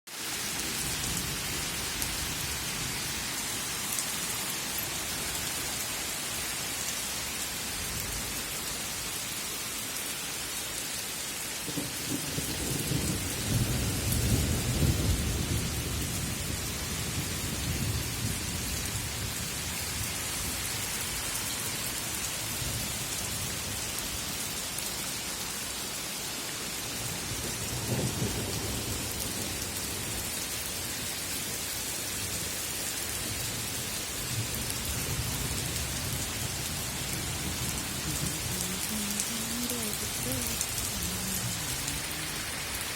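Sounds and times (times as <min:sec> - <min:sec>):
heavy rain pouring: 0:00.1 - 0:42.9.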